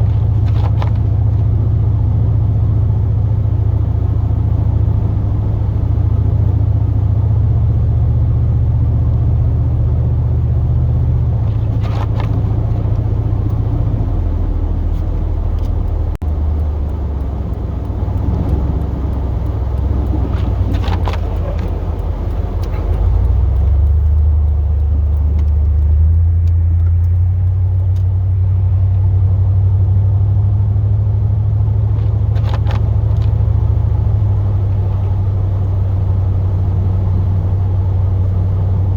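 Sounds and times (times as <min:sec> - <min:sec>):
truck engine droning: 0:00.0 - 0:38.9
faint clicks: 0:14.9 - 0:28.2.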